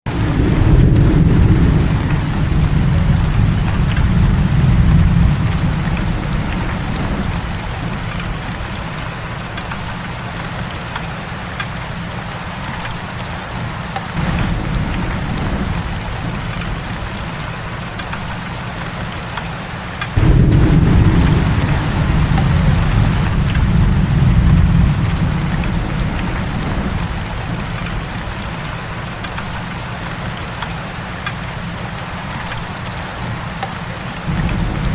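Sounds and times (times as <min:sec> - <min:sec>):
heavy rain pouring: 0:00.1 - 0:34.9
low rumble: 0:20.2 - 0:27.6.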